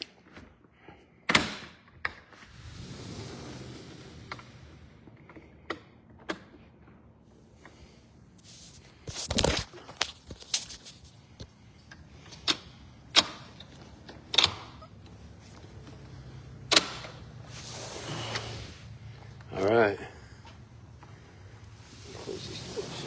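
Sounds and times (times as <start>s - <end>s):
glass door sliding: 2.4s - 5.0s, 12.1s - 19.0s, 21.7s - 23.0s.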